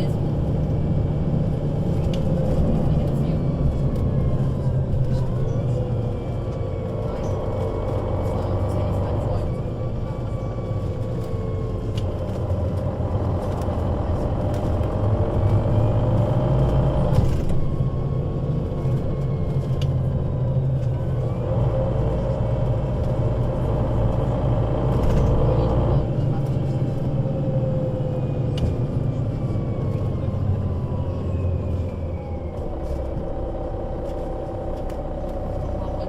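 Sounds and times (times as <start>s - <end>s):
bus diesel engine drone: 0.0s - 36.0s.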